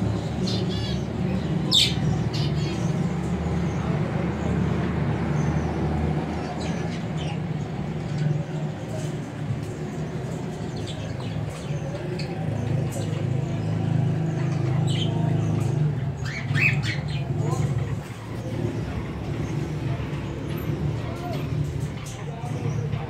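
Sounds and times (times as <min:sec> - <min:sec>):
birds chirping and squawking: 0:00.0 - 0:23.0.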